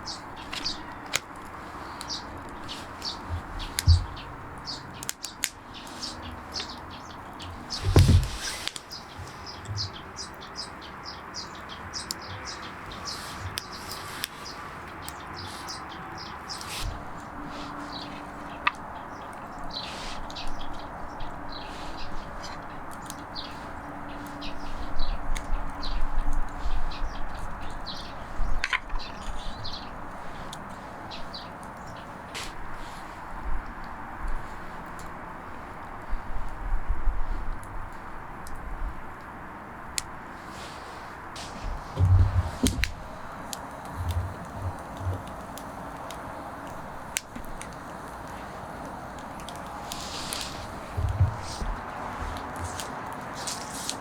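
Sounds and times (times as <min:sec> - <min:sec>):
small birds chirping: 0:00.0 - 0:54.0
dull knocks: 0:03.3 - 0:04.3, 0:07.8 - 0:08.5, 0:41.4 - 0:43.1, 0:51.0 - 0:52.8.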